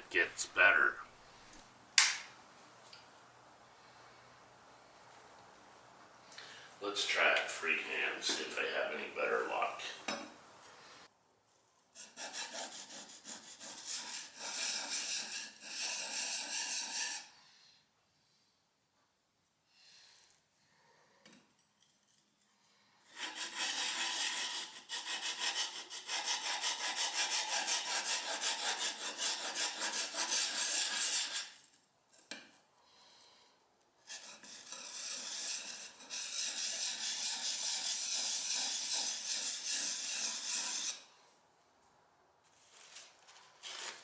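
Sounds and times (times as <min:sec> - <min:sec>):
blade scraping on sharpening stone: 0:34.1 - 0:41.1.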